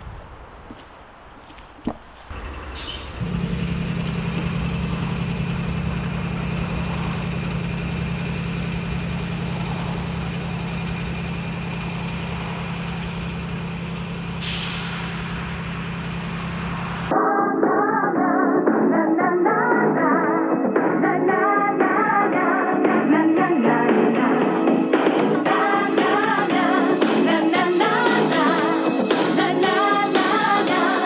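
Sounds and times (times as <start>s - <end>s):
diesel train drone: 2.3s - 17.1s
air hiss bursts: 2.6s - 3.8s, 14.4s - 17.0s.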